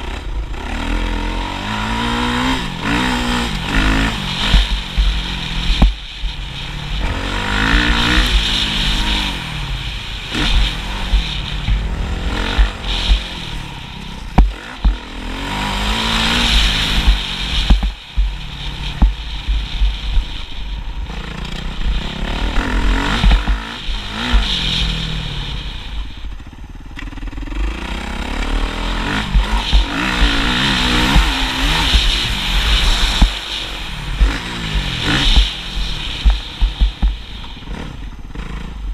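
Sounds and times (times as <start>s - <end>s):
motocross engine revving: 0.0s - 38.9s
wind rumble: 0.0s - 38.9s
sharp knocks: 10.4s - 15.0s, 16.6s - 18.4s.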